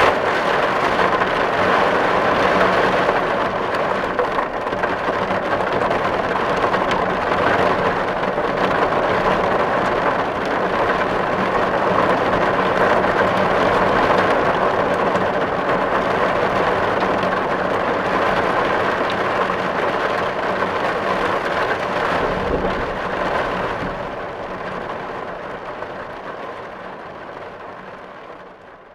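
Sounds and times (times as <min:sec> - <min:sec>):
rain drumming on a tin roof: 0:00.0 - 0:28.9.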